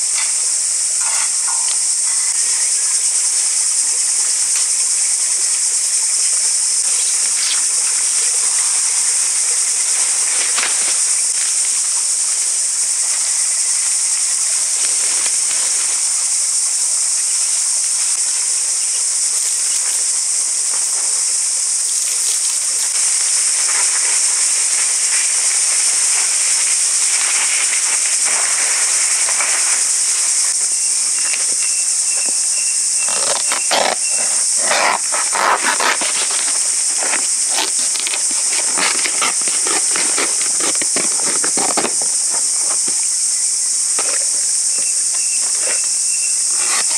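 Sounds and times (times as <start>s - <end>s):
insects droning: 0.0s - 46.9s
clicks and rustles: 33.0s - 43.0s.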